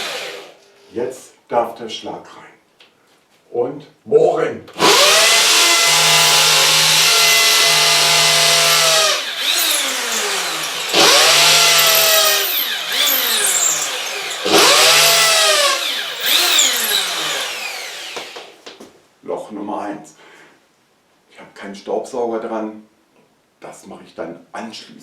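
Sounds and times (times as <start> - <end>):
hammer drill boring into wall: 4.8 - 18.6.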